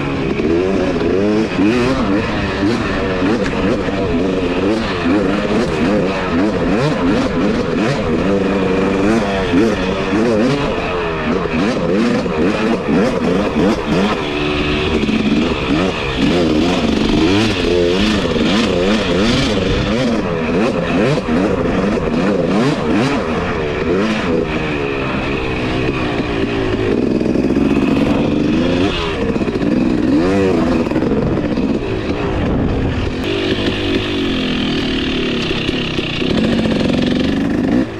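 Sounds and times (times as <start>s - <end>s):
dirt bike engine revving: 0.0s - 37.9s.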